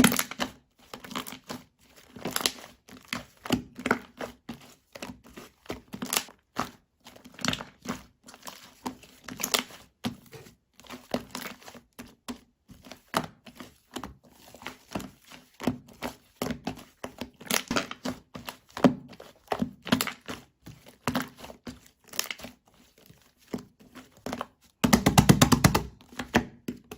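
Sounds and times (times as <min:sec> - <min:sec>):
slime squishing by hand: 0:00.0 - 0:26.9.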